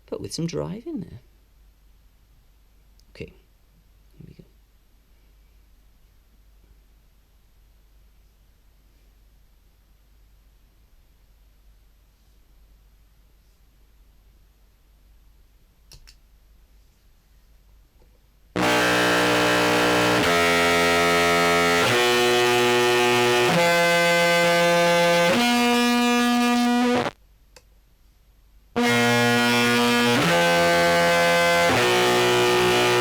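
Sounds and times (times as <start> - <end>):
distorted clarinet notes: 18.6 - 27.1, 28.8 - 33.0.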